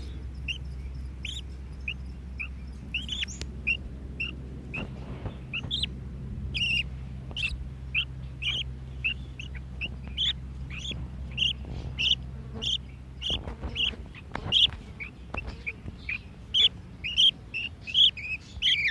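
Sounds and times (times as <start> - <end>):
budgerigar chicks chirping: 0.0 - 18.9.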